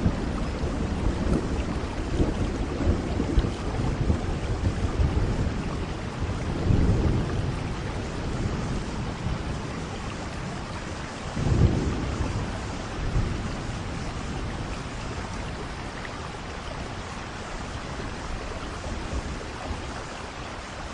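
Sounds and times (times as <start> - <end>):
rolling thunder: 0.0 - 20.0
steady rain: 0.0 - 20.9.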